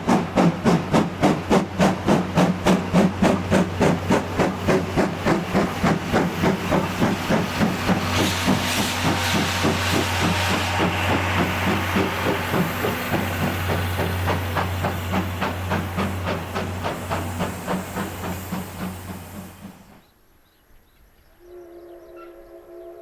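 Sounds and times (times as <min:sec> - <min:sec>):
steam hiss: 0:00.0 - 0:20.0
steam locomotive exhaust chuffing: 0:00.0 - 0:20.0
locomotive whistle: 0:21.4 - 0:23.0.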